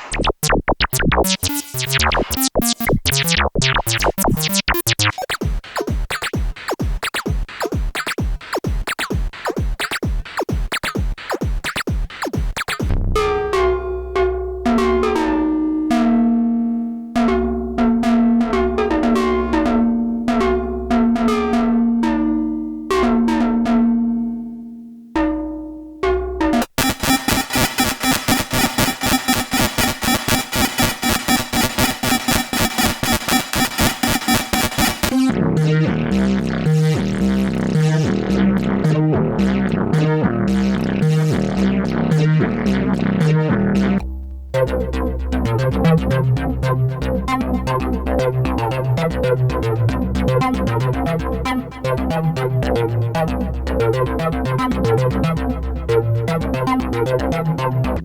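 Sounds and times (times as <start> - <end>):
plucky synthesizer notes: 0.0 - 5.3, 13.2 - 24.6, 25.2 - 41.4.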